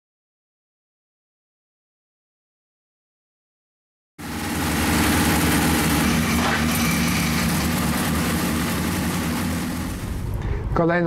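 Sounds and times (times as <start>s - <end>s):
car engine idling: 4.2s - 10.7s.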